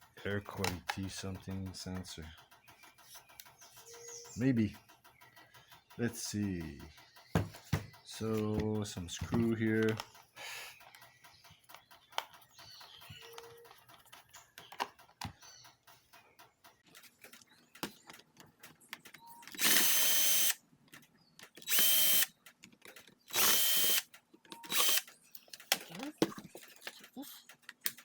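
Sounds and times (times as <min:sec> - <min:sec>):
clicks and taps handling parts: 0:07.4 - 0:16.1, 0:16.9 - 0:19.7
power drill whining: 0:19.5 - 0:20.6, 0:21.6 - 0:22.3, 0:23.3 - 0:24.0, 0:24.7 - 0:25.1.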